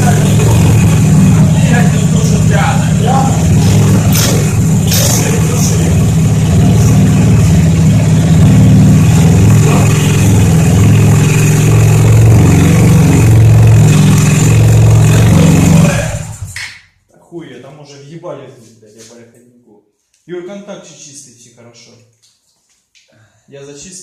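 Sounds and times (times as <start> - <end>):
scooter engine running: 0.0 - 16.6.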